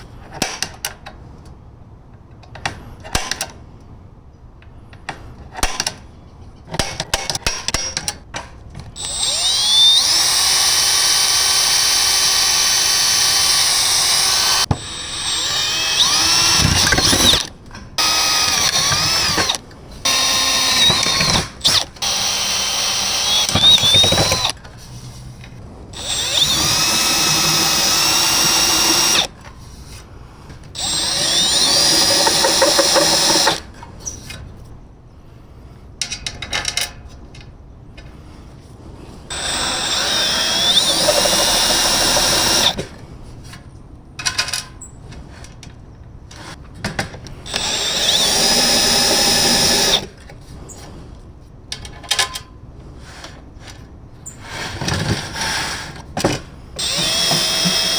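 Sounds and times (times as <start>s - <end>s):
power drill whining: 9.0s - 24.6s, 26.0s - 29.3s, 30.8s - 33.7s, 39.3s - 42.8s, 47.4s - 50.1s, 56.8s - 57.9s.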